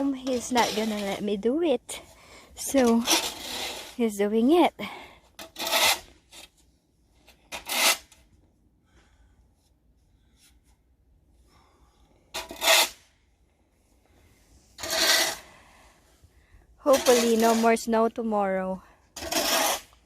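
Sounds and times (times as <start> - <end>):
snow shovel scraping snow: 0.0 - 4.6, 5.4 - 6.3, 14.6 - 15.7, 16.9 - 18.1, 19.2 - 20.0.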